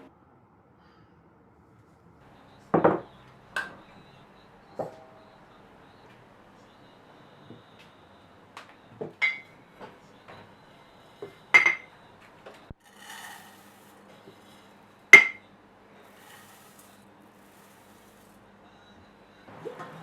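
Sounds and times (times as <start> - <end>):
clinks against ringing bowl: 11.6 - 11.9.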